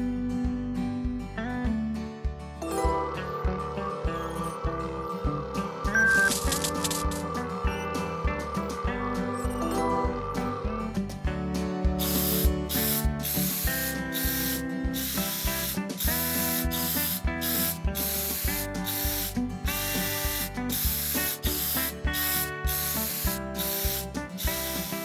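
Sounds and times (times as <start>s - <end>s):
cheerful background music: 0.0s - 25.0s
cartoon spray hissing: 12.0s - 25.0s.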